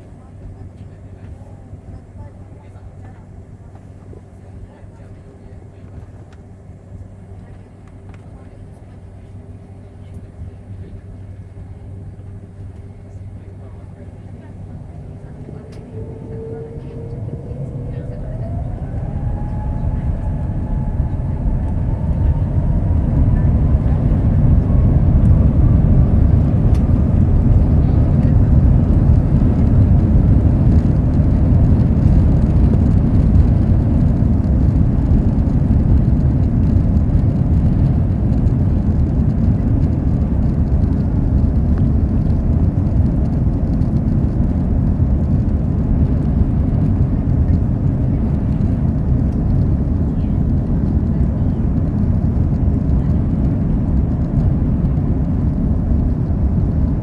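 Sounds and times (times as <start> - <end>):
jet engines rumbling in cabin: 0.0 - 57.0
airflow noise: 13.4 - 57.0.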